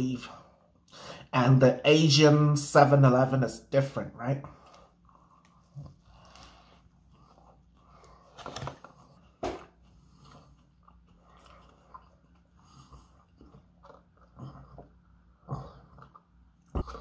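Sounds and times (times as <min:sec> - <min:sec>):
person chewing food: 0:04.6 - 0:17.0.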